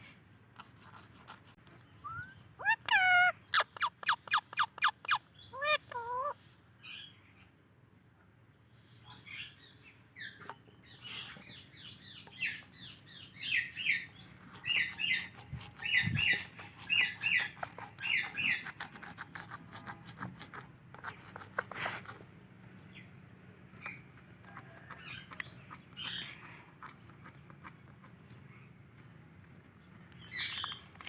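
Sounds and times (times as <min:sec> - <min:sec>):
parrot chirping: 0:01.6 - 0:07.1, 0:11.0 - 0:18.9.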